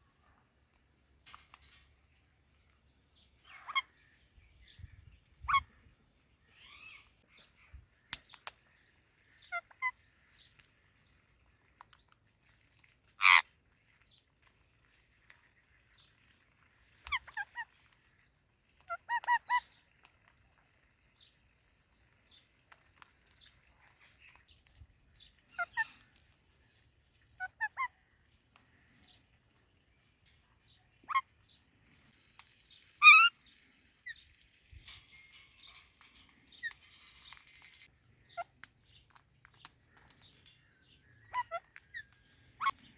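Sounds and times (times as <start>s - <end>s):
parrots squawking: 3.4s - 4.0s, 13.2s - 13.4s, 33.0s - 33.3s.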